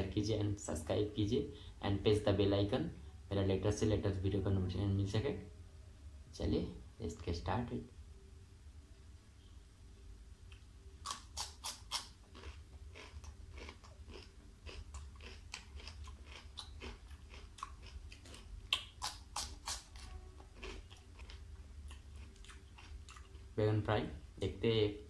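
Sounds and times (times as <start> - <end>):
wet chewing and mouth smacks: 10.5 - 23.5.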